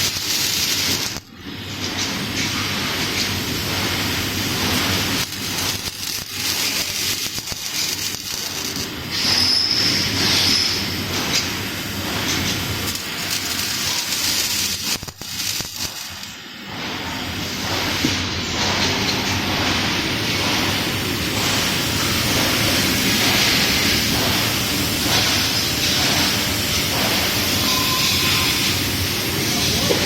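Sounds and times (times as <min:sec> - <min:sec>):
welding machine hissing: 0:00.0 - 0:30.0.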